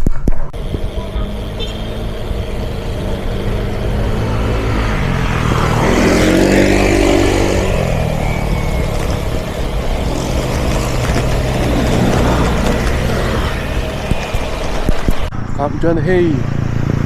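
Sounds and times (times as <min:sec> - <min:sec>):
road noise rumble: 0:00.5 - 0:17.0
car passing by: 0:00.6 - 0:15.3.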